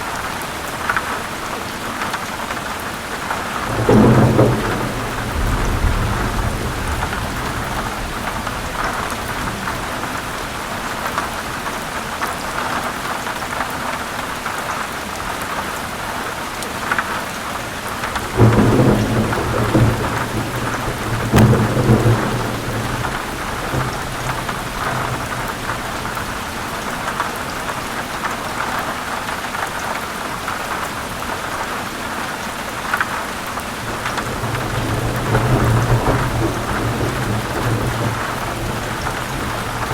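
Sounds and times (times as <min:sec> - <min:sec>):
heavy rain falling: 0:00.0 - 0:39.9
thunder crack and rumble: 0:03.2 - 0:11.8, 0:17.8 - 0:28.2, 0:33.8 - 0:39.9.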